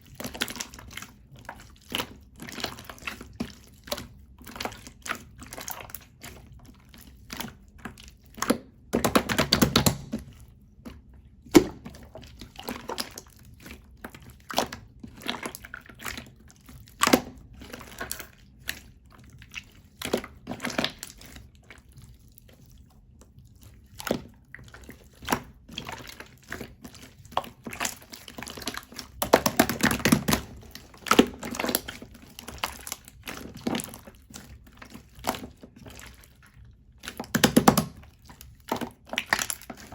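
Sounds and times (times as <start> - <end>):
slime squished by hand: 11.4 - 21.5.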